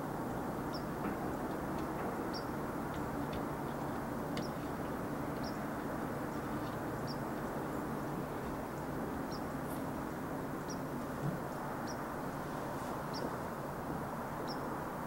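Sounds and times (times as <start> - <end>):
low background rush and hum: 0.0 - 15.0
bird chirping: 2.3 - 2.6, 3.2 - 7.9, 9.2 - 9.6, 10.6 - 10.9, 13.1 - 13.4, 14.4 - 14.7.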